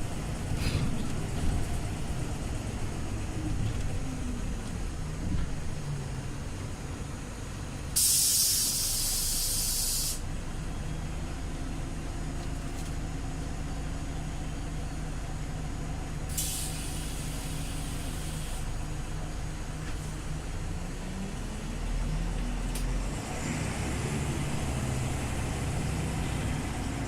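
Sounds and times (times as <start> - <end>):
bus idling: 0.0 - 27.0
compressed air hiss: 8.0 - 10.2, 16.3 - 18.7.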